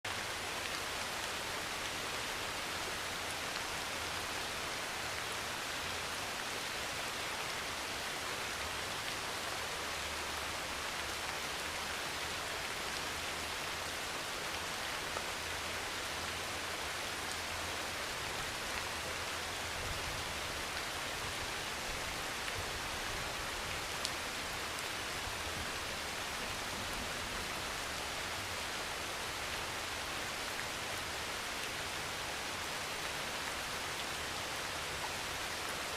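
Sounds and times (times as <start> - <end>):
heavy rain on a metal roof: 0.0 - 35.9.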